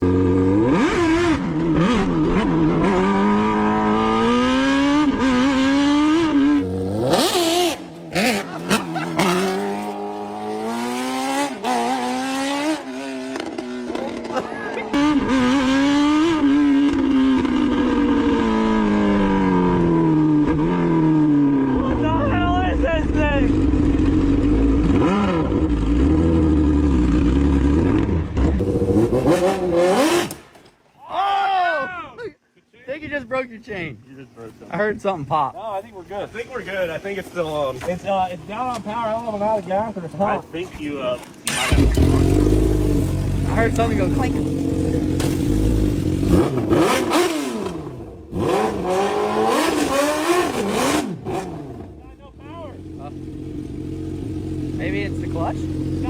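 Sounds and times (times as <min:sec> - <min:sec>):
golf cart engine revving: 0:00.0 - 0:21.8, 0:23.6 - 0:30.5, 0:41.4 - 0:56.0.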